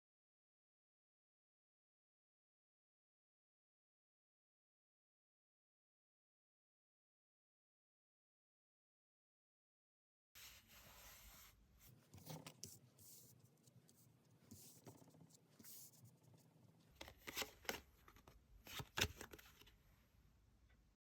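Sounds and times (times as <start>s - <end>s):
cards rustling: 17.0s - 19.7s.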